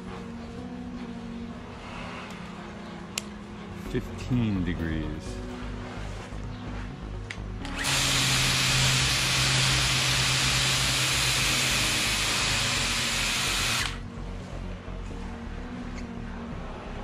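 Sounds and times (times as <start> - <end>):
pump motor hum: 7.6 - 14.0.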